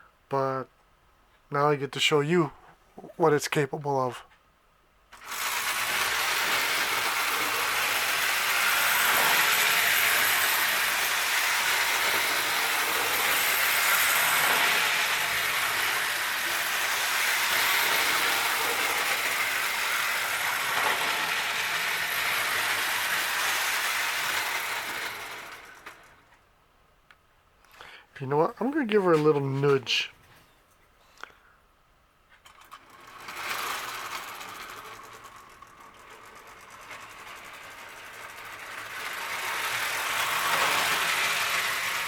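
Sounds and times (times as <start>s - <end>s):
clockwork toy train rattling: 5.2s - 26.3s, 32.4s - 42.0s.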